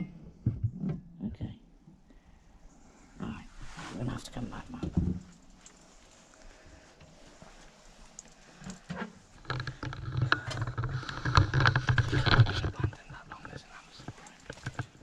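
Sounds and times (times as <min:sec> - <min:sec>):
rustling: 0:02.7 - 0:15.0
crunching footsteps: 0:04.4 - 0:15.0.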